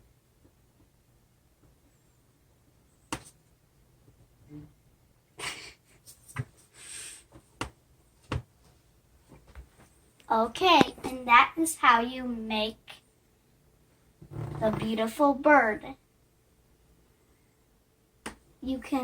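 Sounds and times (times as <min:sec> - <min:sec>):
sharp knocks: 0:14.2 - 0:15.0.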